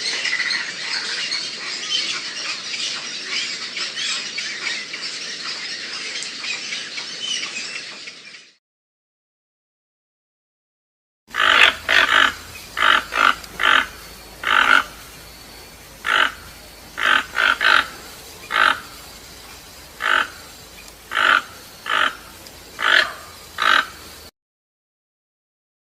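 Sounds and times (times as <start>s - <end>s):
bird giving harsh croaking calls: 11.3s - 24.3s.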